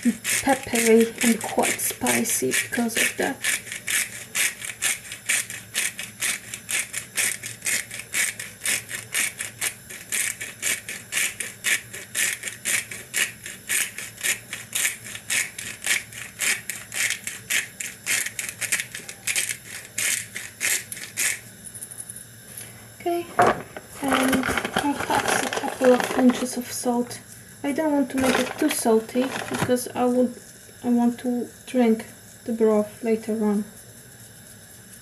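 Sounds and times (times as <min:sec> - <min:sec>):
pepper mill grinding: 0:00.0 - 0:22.2, 0:23.3 - 0:27.1, 0:27.8 - 0:30.3.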